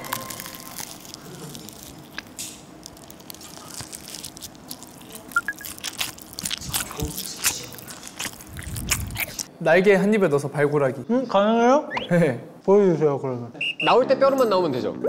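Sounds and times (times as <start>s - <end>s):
crunchy fried chicken chewing: 0.0s - 9.5s.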